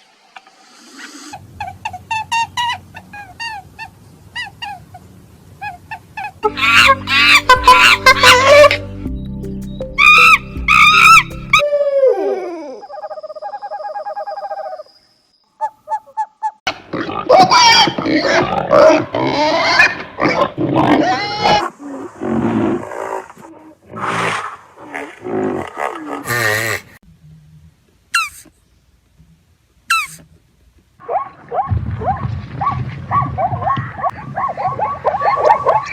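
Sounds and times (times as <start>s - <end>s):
chorus of small animals crying: 5.7s - 8.8s
background music: 6.4s - 11.6s
short pitched animal calls: 28.1s - 28.6s, 29.9s - 30.3s.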